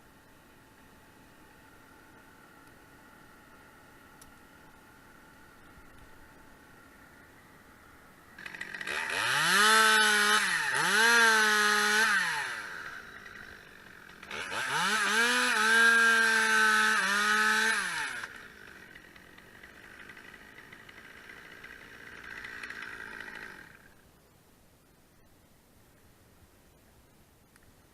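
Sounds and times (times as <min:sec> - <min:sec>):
chainsaw revving: 0:08.2 - 0:24.0.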